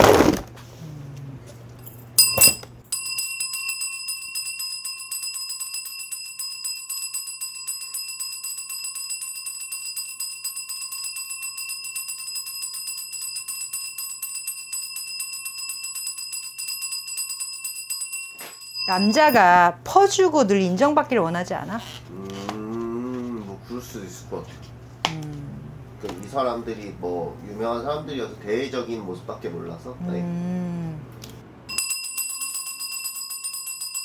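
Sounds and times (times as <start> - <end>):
ritual bells jingling: 1.9 - 19.7, 31.7 - 34.0.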